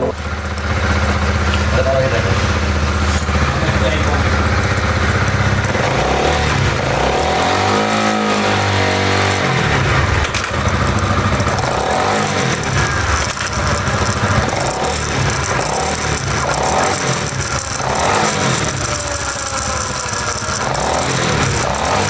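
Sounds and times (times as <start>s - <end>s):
drive chain turning: 0.0s - 22.0s
motorcycle engine revving: 0.0s - 22.0s.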